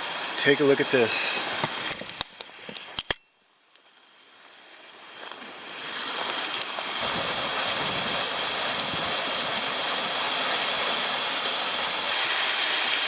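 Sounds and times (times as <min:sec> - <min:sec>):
waterfall rushing: 0:00.0 - 0:02.1, 0:04.9 - 0:13.0.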